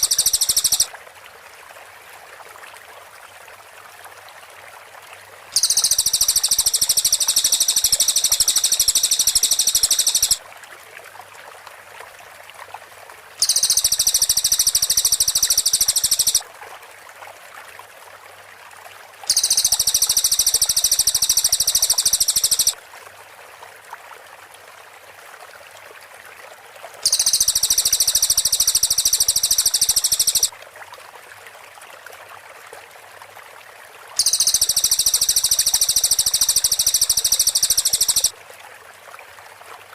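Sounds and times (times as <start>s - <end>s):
bird high-pitched trill: 0.0s - 0.9s, 5.6s - 10.4s, 13.4s - 16.4s, 19.3s - 22.8s, 27.0s - 30.5s, 34.2s - 38.3s
faint steady hiss: 0.0s - 2.0s, 3.5s - 10.7s, 11.4s - 16.6s, 18.4s - 23.7s, 27.0s - 30.6s, 34.1s - 38.4s.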